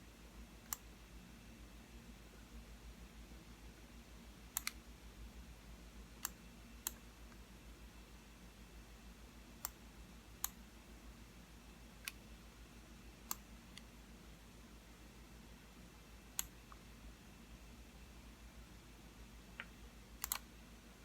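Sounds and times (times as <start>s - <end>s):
faint low hum: 0.0s - 21.0s
computer mouse button clicking: 4.6s - 4.8s, 19.6s - 20.4s.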